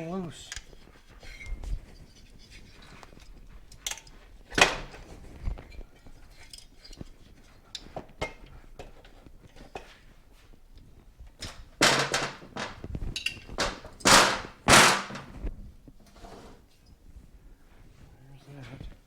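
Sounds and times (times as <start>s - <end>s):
loud sharp knock: 14.0s - 15.4s.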